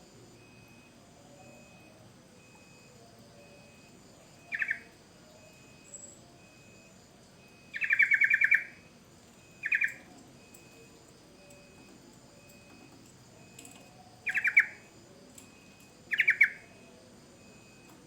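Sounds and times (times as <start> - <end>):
bulbul calling: 4.4 - 4.9, 7.7 - 8.8, 9.6 - 10.0, 14.2 - 14.8, 16.1 - 16.7.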